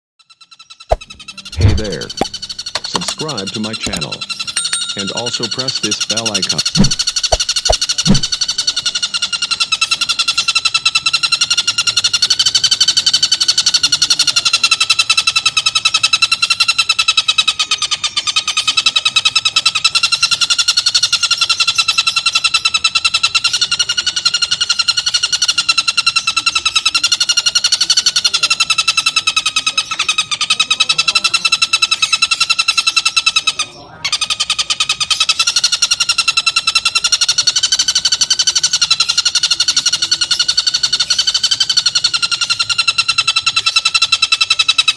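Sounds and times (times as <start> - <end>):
kingfisher rattling trill: 0.9 - 8.8.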